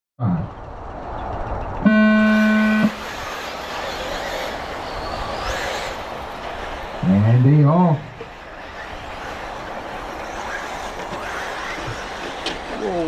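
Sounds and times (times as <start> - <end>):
electronic horn tone: 1.8 - 3.1.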